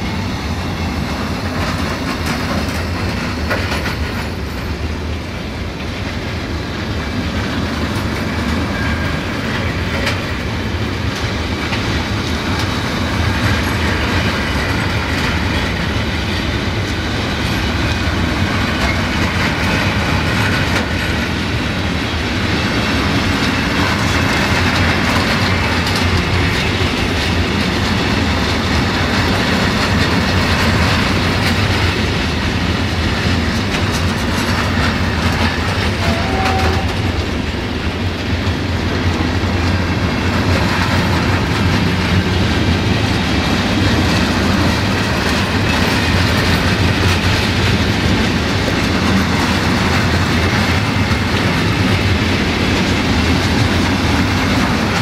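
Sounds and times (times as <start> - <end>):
train wheels rumbling on rail: 0.0 - 55.0
wheels clicking over rail joints: 0.0 - 55.0.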